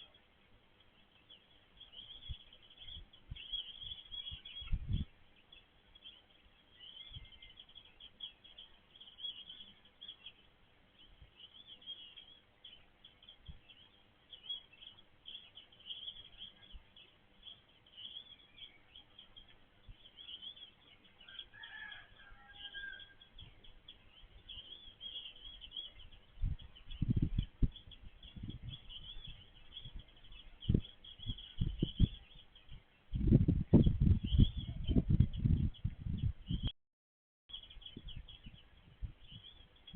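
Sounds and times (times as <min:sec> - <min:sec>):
birds chirping: 0:00.0 - 0:36.7, 0:37.5 - 0:39.9
low thumps and rumbles: 0:26.4 - 0:36.7.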